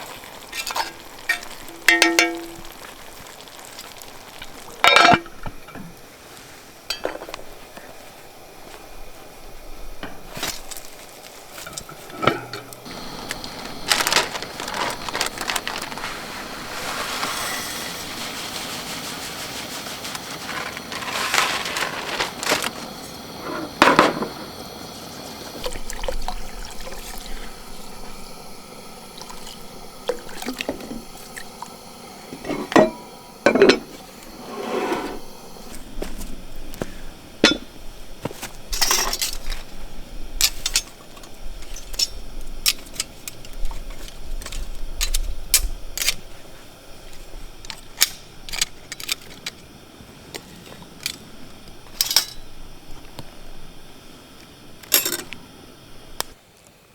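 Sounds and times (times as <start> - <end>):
scraping and rustling handling: 0.0 - 9.3, 10.0 - 24.6, 32.3 - 52.5
cookware and utensils clinking: 0.4 - 2.9, 4.7 - 6.0, 6.9 - 7.4, 11.6 - 13.0, 32.3 - 35.2, 37.4 - 37.8, 38.7 - 39.6, 51.9 - 52.5, 54.8 - 55.4.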